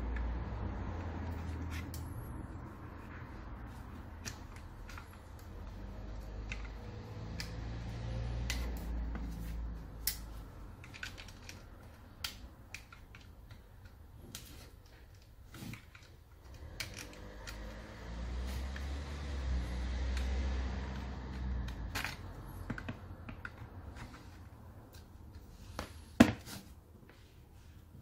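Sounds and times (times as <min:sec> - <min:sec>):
clicks and taps of metal parts: 0:10.0 - 0:17.8.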